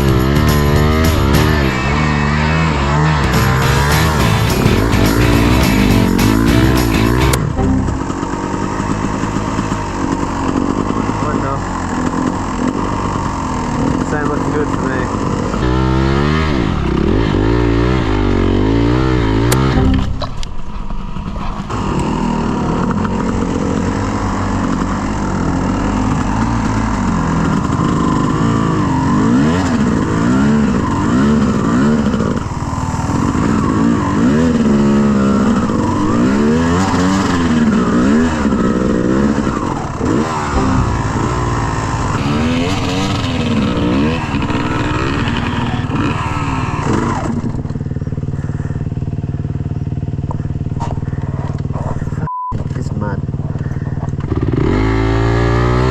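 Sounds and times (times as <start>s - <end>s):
dirt bike engine revving: 0.0s - 51.8s, 53.7s - 55.9s.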